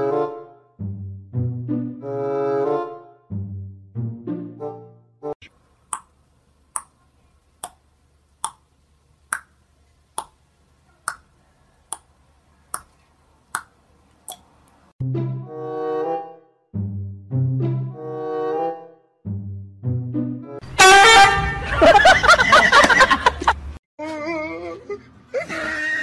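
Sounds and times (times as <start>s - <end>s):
faint steady hiss: 5.4s - 14.9s.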